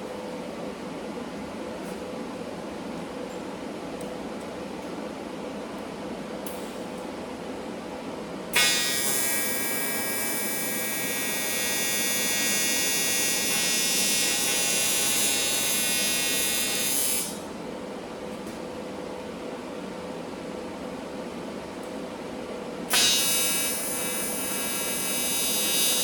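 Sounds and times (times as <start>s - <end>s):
welding arc buzzing: 8.6s - 17.4s, 22.9s - 26.0s.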